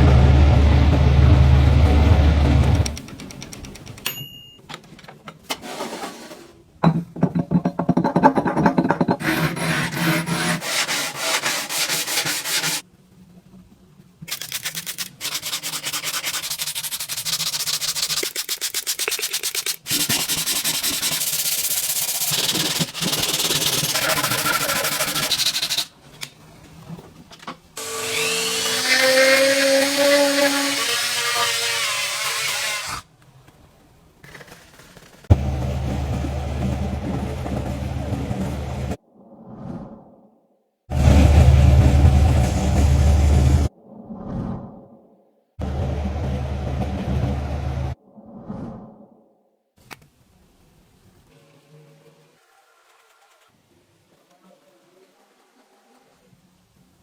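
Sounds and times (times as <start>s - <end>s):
scratchy sanding strokes: 9.2s - 12.8s, 14.4s - 25.9s
small power tool whine: 27.8s - 32.9s.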